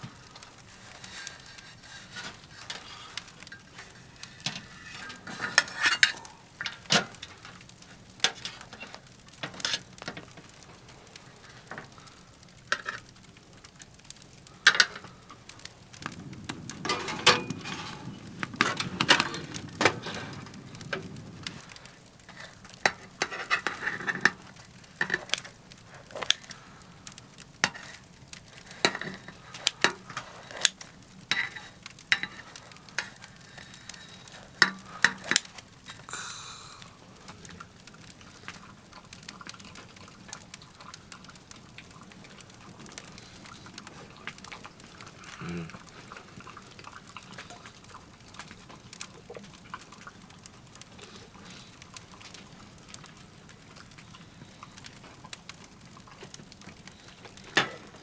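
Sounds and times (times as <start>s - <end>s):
dense rustle: 0.0s - 12.4s, 14.4s - 38.9s
firewood crackling and popping: 0.0s - 58.0s.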